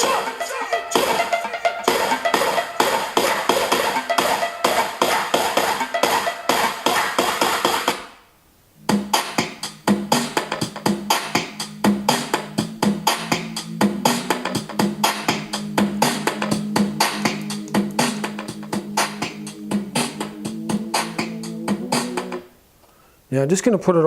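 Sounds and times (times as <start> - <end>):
music from speaker: 0.0 - 8.1, 8.8 - 22.5
guitar with steady beat: 12.6 - 22.5.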